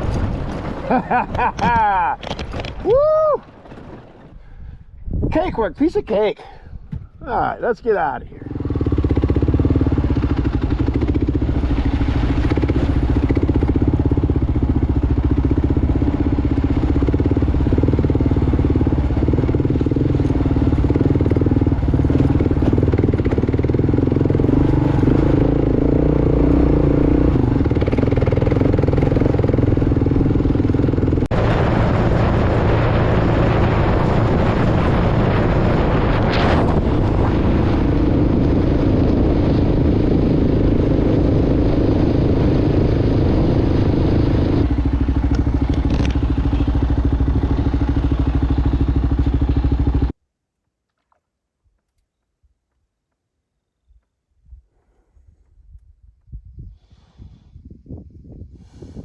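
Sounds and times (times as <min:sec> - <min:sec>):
motorcycle engine running: 0:08.4 - 0:50.2.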